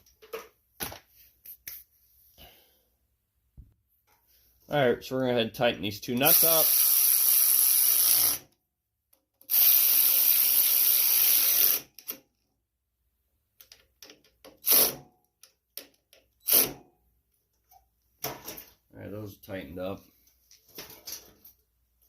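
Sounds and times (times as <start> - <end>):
power drill running: 6.3 - 8.4, 9.5 - 11.8
tool handling clicks and knocks: 13.6 - 14.6, 20.3 - 21.7.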